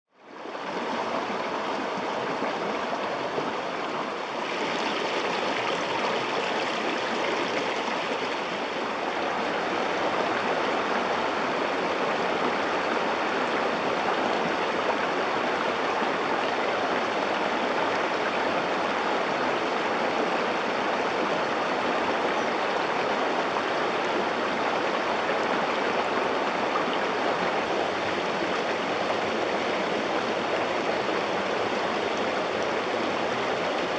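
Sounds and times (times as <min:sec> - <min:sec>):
river water rushing over rocks: 0:00.2 - 0:33.9.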